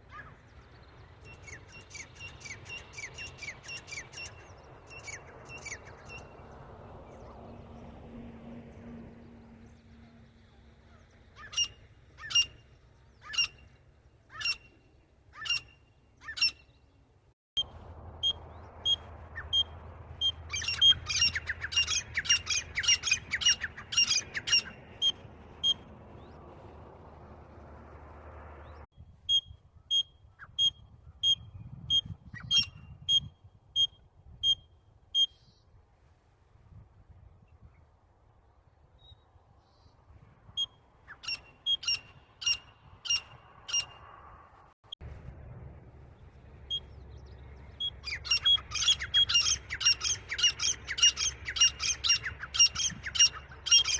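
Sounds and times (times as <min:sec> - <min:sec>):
bird calling sharp high notes: 0:47.8 - 0:53.9.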